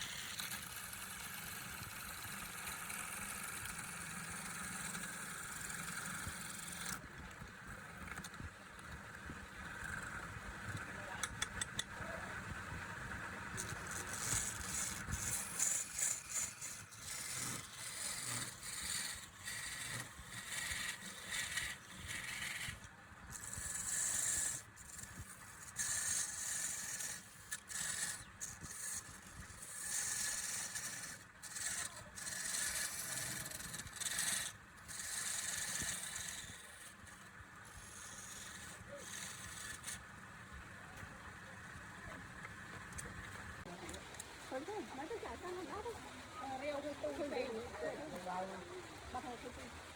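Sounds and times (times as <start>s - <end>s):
tool scraping wood on a lathe: 0.0s - 7.4s, 13.5s - 40.7s.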